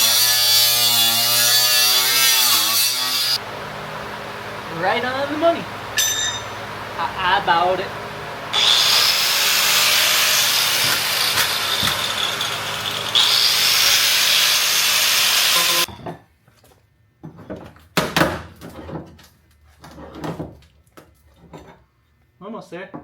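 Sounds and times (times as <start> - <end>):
angle grinder cutting sheet metal: 0.0 - 3.4, 8.5 - 15.9.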